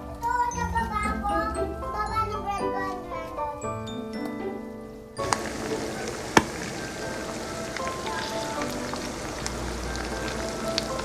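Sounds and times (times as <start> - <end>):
food sizzling in hot oil: 5.2 - 11.0.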